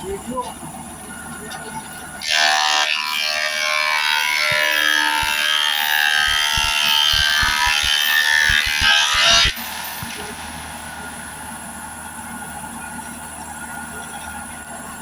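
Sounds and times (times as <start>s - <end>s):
wood planer whine: 2.1s - 15.0s
low knocks: 6.2s - 9.5s.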